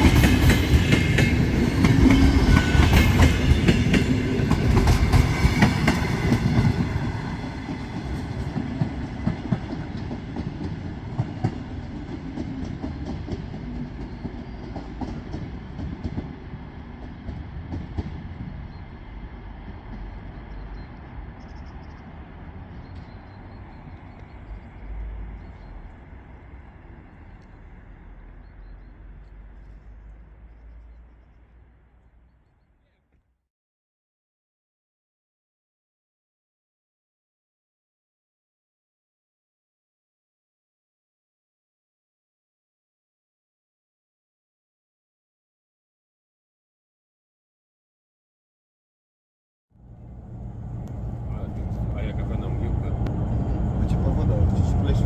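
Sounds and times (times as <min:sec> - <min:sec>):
train wheels clattering over rail joints: 0:00.0 - 0:18.8.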